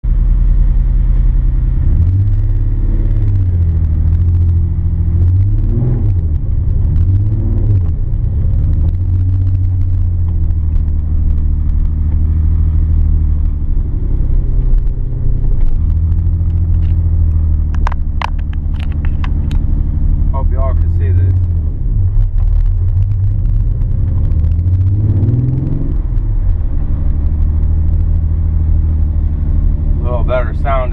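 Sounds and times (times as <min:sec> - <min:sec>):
car engine running: 0:00.0 - 0:30.9
sharp clicks: 0:15.6 - 0:19.7.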